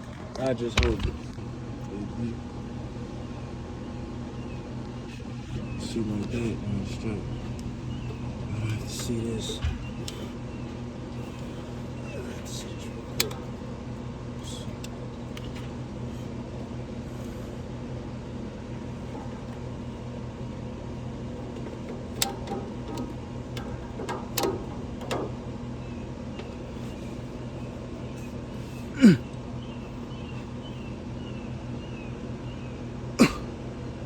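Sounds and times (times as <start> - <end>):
low machine hum: 0.0 - 34.0
light clicks and taps: 13.1 - 13.6, 21.4 - 25.3.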